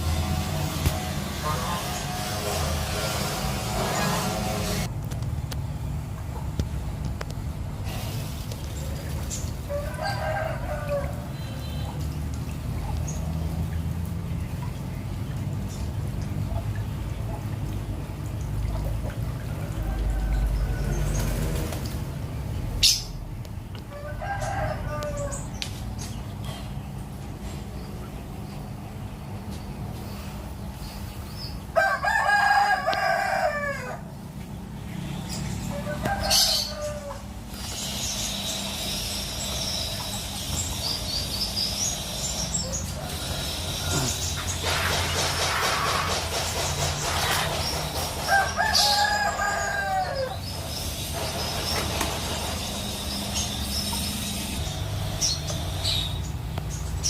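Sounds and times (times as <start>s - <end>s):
steady low hum: 0.0s - 32.1s
rooster crowing: 9.7s - 11.8s, 23.9s - 25.4s, 31.8s - 34.1s, 35.7s - 37.3s, 42.9s - 44.2s, 48.3s - 50.4s.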